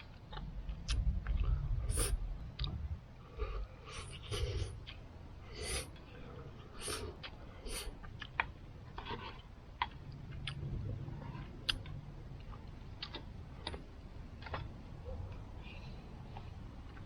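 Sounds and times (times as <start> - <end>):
low rumble: 0.0 - 6.7, 10.0 - 13.5.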